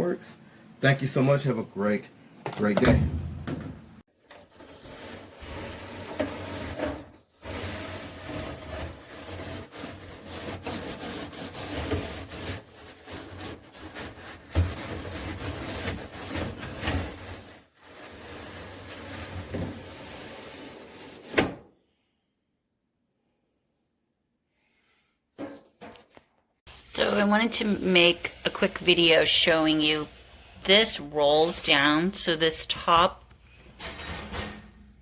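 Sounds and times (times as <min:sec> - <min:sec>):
handling noise rubbing and scraping: 0:04.2 - 0:21.4, 0:30.7 - 0:34.9.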